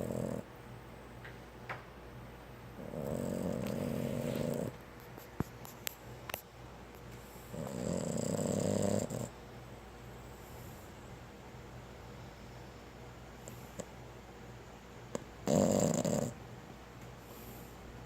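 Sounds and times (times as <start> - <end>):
dog snoring: 0.0 - 0.5, 2.8 - 4.8, 7.4 - 9.4, 15.1 - 16.4.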